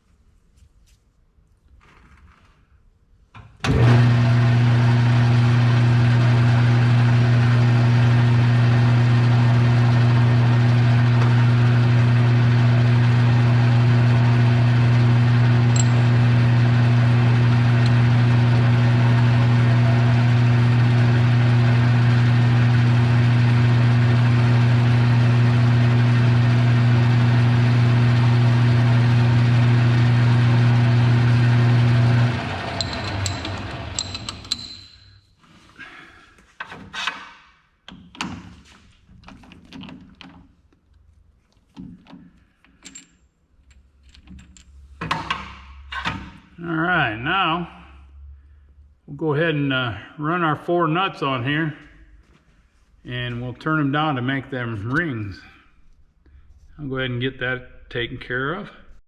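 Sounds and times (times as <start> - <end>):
metal lathe motor humming: 3.7 - 34.8.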